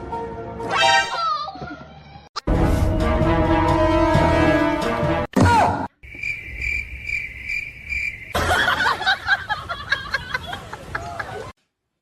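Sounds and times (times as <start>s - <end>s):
cricket chirping: 6.0s - 9.2s.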